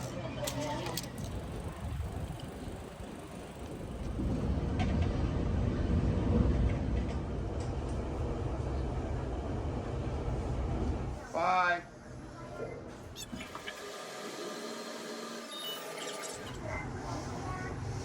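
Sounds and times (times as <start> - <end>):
train rumbling: 1.0 - 11.3.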